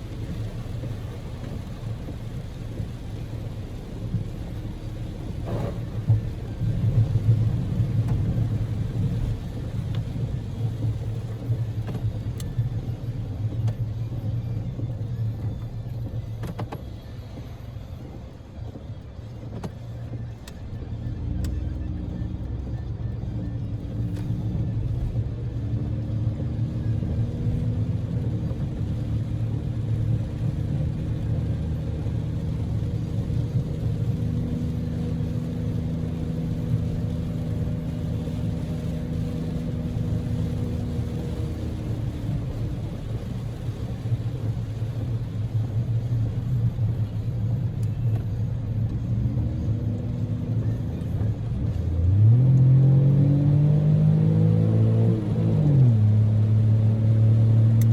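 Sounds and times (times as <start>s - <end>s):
engine and road noise: 0.0s - 57.9s
engine hum rising in pitch: 46.0s - 57.9s.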